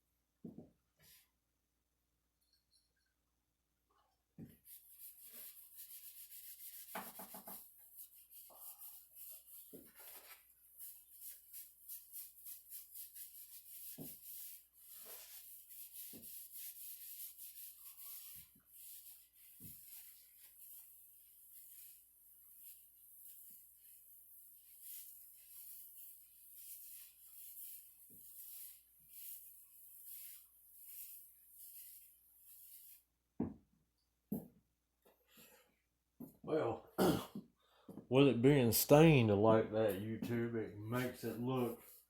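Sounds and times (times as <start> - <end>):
hand rubbing wood: 4.6 - 33.0.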